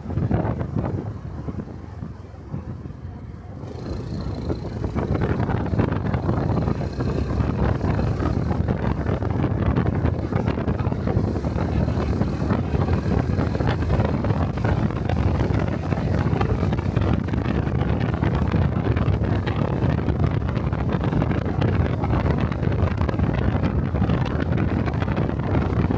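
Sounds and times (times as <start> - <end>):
motorcycle engine and exhaust: 0.0 - 25.9
wind buffeting microphone: 0.0 - 25.9.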